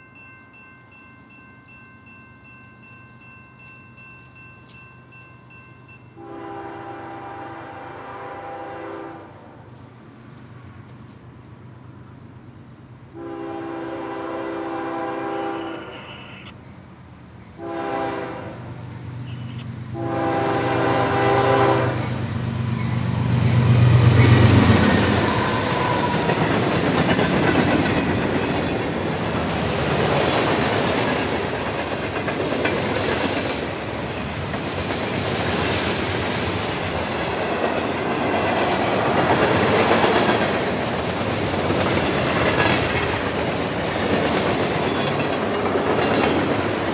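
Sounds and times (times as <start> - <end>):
train horn blasts: 6.2 - 9.7, 13.1 - 16.5, 17.6 - 22.2
locomotives passing: 6.5 - 46.9
freight cars clickety-clack: 22.2 - 46.9.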